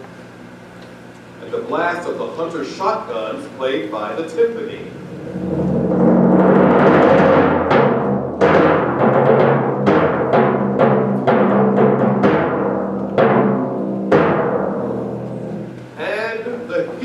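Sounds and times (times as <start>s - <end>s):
timpani roll: 4.6s - 15.8s
sharp timpani strokes: 4.6s - 16.1s.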